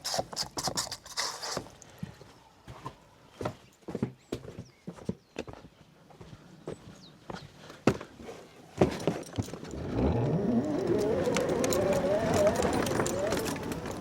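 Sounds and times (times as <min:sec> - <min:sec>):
electric motor whine rising: 0:09.7 - 0:14.0.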